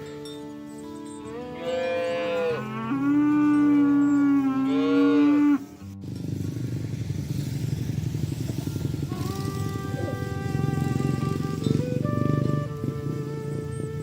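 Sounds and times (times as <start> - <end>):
cow mooing: 1.2 - 5.8, 9.2 - 11.8.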